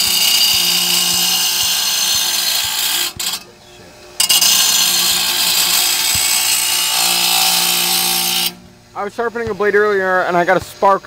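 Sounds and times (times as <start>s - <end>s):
grinder grinding steel blade: 0.0s - 3.5s, 4.2s - 8.6s.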